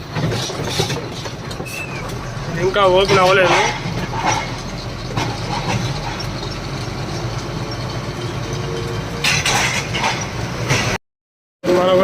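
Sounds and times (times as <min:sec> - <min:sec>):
diesel truck engine idling: 0:01.0 - 0:09.3.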